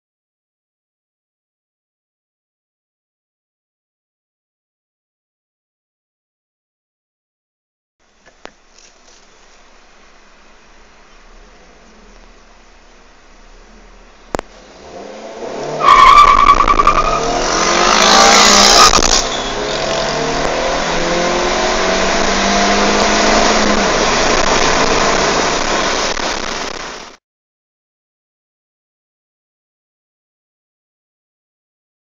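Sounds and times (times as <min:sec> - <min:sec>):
car engine accelerating: 0:09.6 - 0:27.2.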